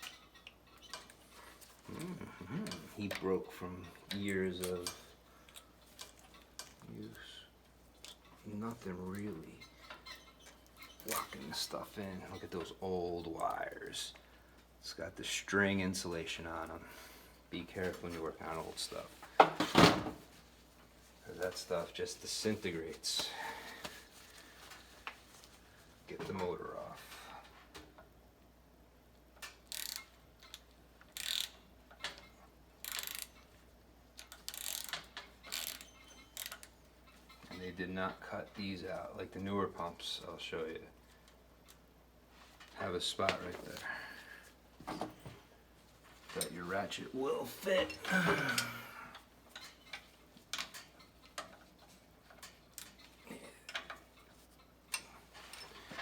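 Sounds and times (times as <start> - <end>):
ratchet wrench clicking: 29.4 - 31.6, 32.8 - 33.4, 34.2 - 36.7.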